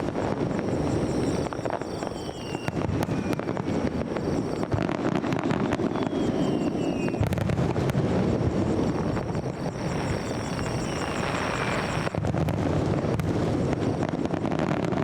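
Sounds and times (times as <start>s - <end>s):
fireworks booming and crackling: 0.0s - 15.0s
faint falling whistles: 0.5s - 7.5s, 8.6s - 12.2s.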